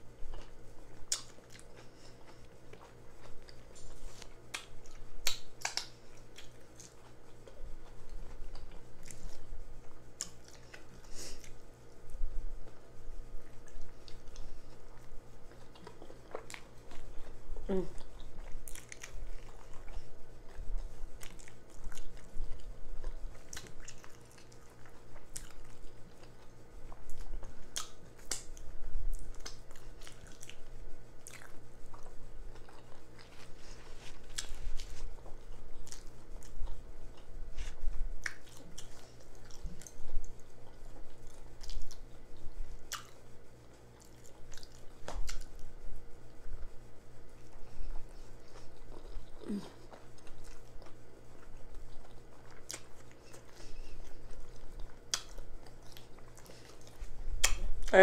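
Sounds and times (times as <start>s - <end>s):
person chewing and biting: 0.2s - 11.7s, 13.4s - 45.7s, 47.4s - 57.9s
wet lip smacking: 55.1s - 57.9s.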